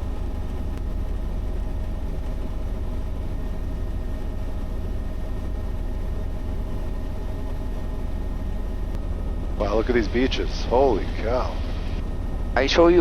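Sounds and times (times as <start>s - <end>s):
faint turbine whine: 0.0s - 13.0s
helicopter rotor rumble: 0.0s - 13.0s.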